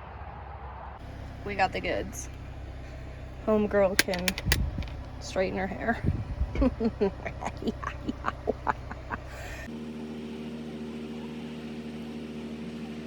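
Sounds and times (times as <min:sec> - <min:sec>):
steady droning hum: 0:01.0 - 0:09.7
voices: 0:01.0 - 0:09.7.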